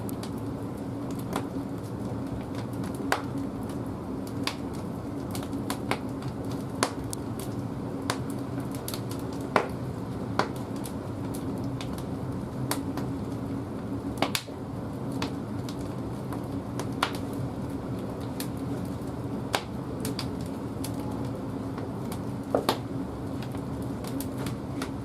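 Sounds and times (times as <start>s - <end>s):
burning wood popping and crackling: 0.0s - 25.0s
low hum of fire: 0.0s - 25.0s.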